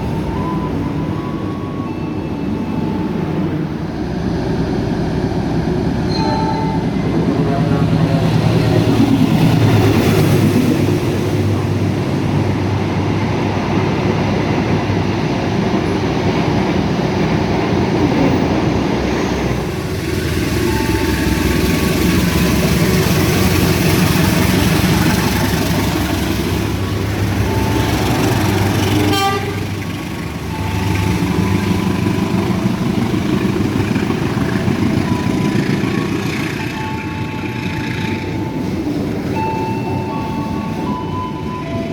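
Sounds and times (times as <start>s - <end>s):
train wheels rumbling on rails: 0.0s - 41.9s
train horn toots: 27.8s - 29.8s.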